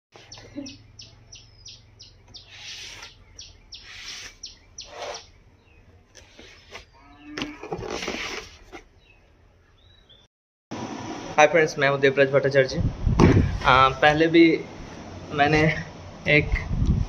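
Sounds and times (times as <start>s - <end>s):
bird chirping: 0.2s - 7.6s, 9.0s - 10.3s.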